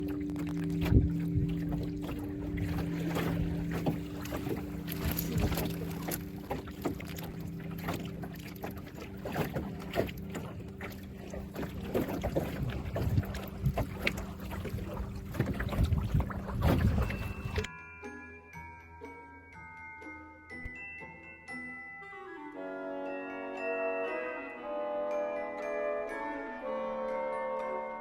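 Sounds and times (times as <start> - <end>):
motorboat engine humming: 0.0 - 17.7
water splashing against hull: 0.0 - 17.7.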